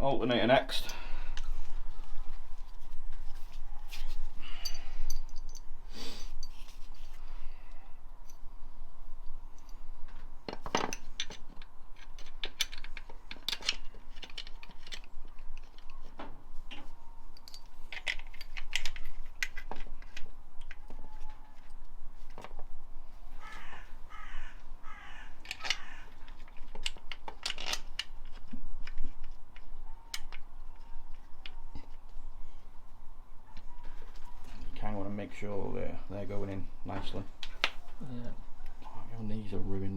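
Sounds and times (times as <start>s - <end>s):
metallic clinks of hand tools: 4.6s - 6.6s.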